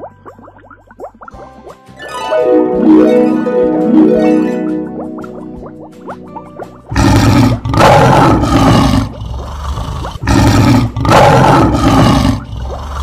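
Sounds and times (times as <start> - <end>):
lion roaring: 6.9 - 13.0.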